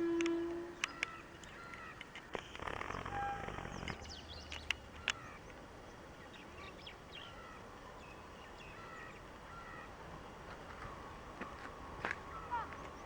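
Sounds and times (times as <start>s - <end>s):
birds chirping faintly: 0.0s - 13.0s
sharp clicks: 0.2s - 5.2s.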